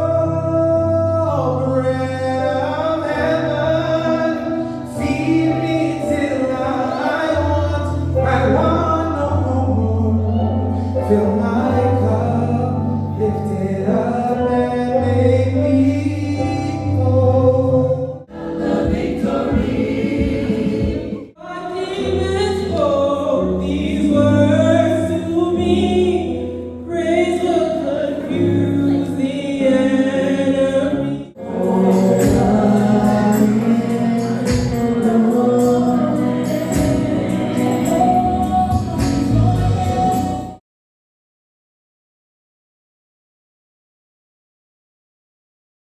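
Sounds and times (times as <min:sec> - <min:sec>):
choir singing gospel: 0:02.6 - 0:12.7, 0:17.6 - 0:40.6.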